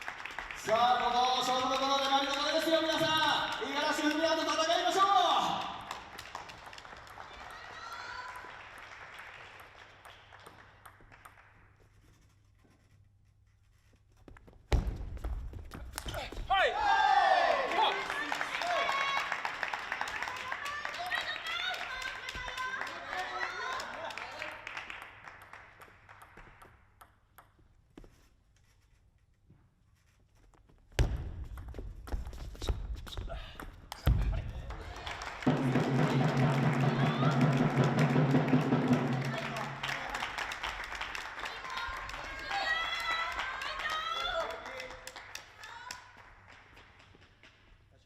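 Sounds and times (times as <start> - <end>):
crowd applause: 0.0 - 11.5, 16.8 - 26.2, 34.3 - 47.0
table tennis ball bouncing: 26.1 - 27.8
crowd noise: 34.8 - 40.5.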